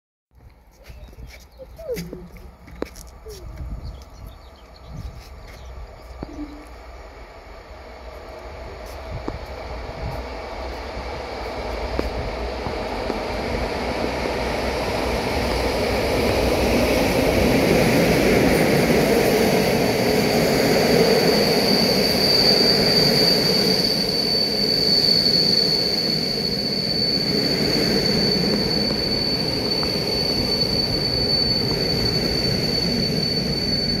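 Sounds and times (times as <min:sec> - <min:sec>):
passenger train rumbling past: 0:00.4 - 0:34.0
high-pitched squeal: 0:08.3 - 0:34.0.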